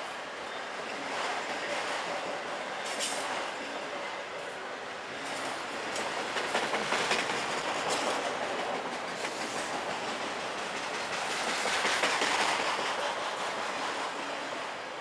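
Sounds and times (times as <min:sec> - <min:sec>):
freight train wheels rumbling: 0:00.0 - 0:15.0
wheels clicking over rail joints: 0:05.2 - 0:14.2.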